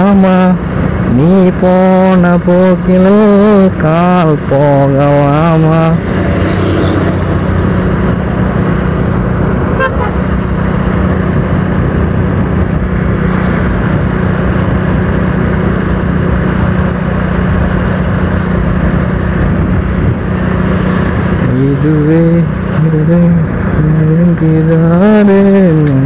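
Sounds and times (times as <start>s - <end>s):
motorcycle engine cruising: 0.0s - 26.0s
wind rush on microphone: 0.0s - 26.0s
short horn toot: 9.8s - 10.3s.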